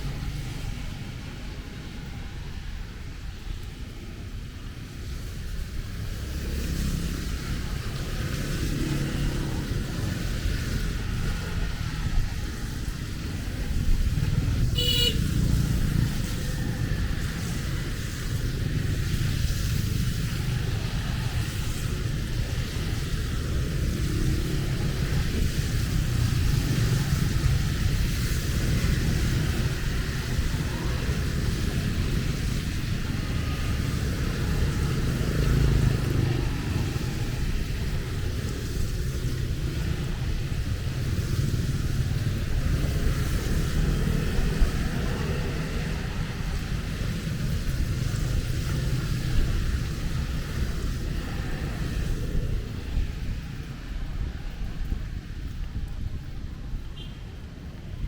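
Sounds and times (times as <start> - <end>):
rain hissing: 0.0 - 58.0
traffic on wet road: 0.0 - 58.0
vehicle horn toot: 14.8 - 15.2.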